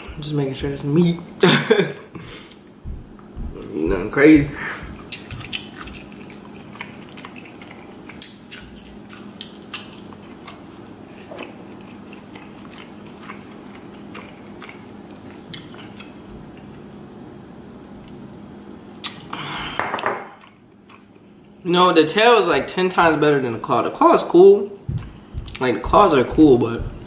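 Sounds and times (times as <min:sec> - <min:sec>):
faint steady hum: 0:00.0 - 0:27.0
person chewing: 0:02.2 - 0:16.9, 0:19.0 - 0:21.6, 0:24.9 - 0:27.0.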